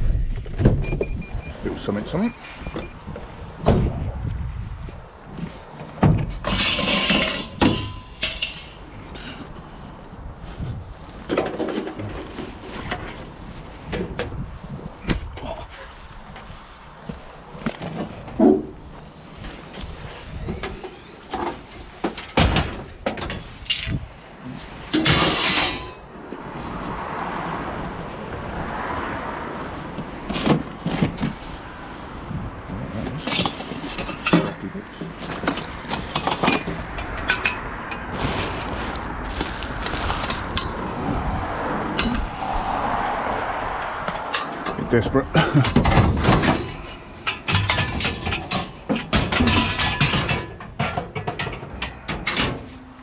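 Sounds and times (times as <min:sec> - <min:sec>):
traffic noise: 0:00.0 - 0:53.0
scrap metal clattering: 0:06.3 - 0:09.5, 0:24.8 - 0:26.1, 0:45.4 - 0:52.9.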